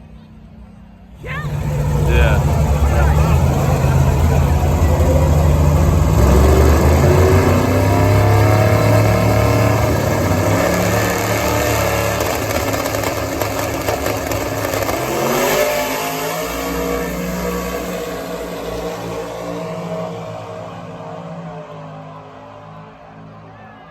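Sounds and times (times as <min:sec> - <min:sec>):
race car accelerating hard: 0:01.2 - 0:22.6.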